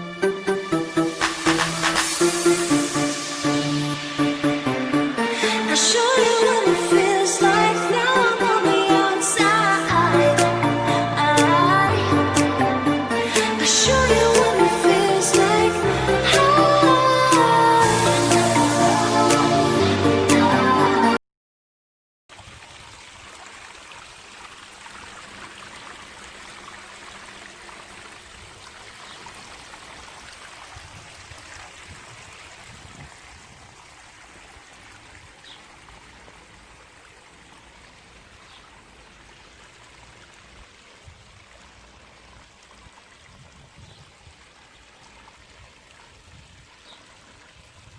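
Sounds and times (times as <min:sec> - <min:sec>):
waterfall splashing into pond: 0:00.5 - 0:11.7, 0:13.2 - 0:19.5, 0:22.3 - 0:47.9.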